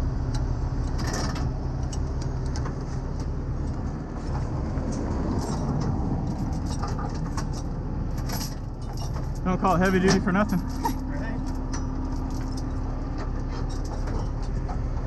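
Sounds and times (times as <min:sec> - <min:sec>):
truck engine idling: 0:00.0 - 0:15.0
chains clinking: 0:05.3 - 0:12.9.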